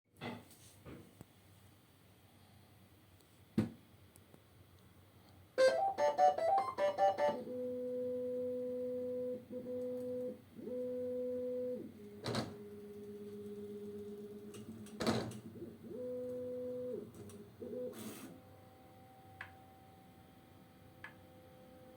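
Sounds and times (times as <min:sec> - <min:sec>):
printer motors pitched tones: 0:05.6 - 0:13.2, 0:15.0 - 0:18.2.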